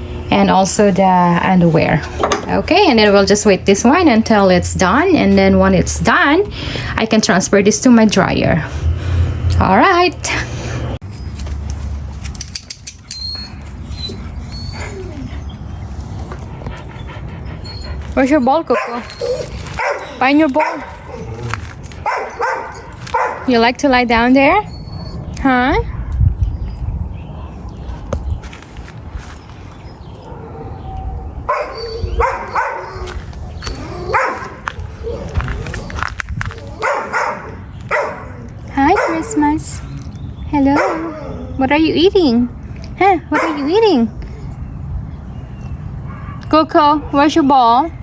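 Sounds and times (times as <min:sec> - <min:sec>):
steady low rumble: 0:00.0 - 0:12.5
dog whining: 0:13.0 - 0:15.8, 0:16.8 - 0:18.1, 0:18.7 - 0:23.4, 0:24.5 - 0:25.4, 0:30.2 - 0:36.0, 0:40.8 - 0:41.9
wind rumbling on microphone: 0:23.0 - 0:42.9.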